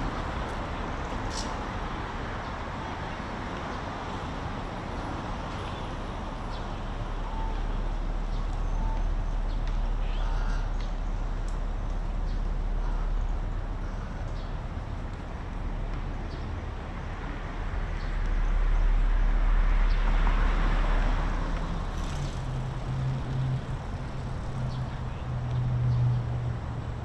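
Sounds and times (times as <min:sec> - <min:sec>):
road traffic rumble: 0:00.0 - 0:27.0
low engine hum: 0:06.3 - 0:27.0
vehicle passing by: 0:18.6 - 0:27.0.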